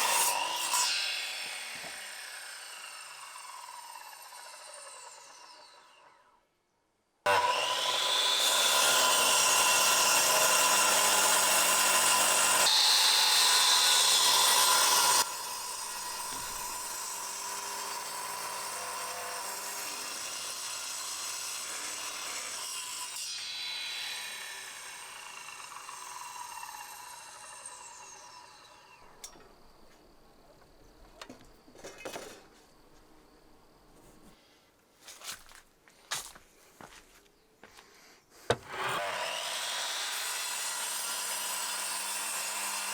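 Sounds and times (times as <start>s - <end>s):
electric saw cutting wood: 0.0s - 6.3s, 7.3s - 29.2s, 38.5s - 42.9s.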